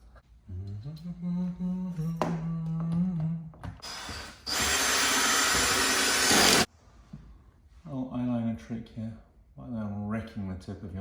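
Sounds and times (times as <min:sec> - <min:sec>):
power drill running: 0:03.8 - 0:06.7.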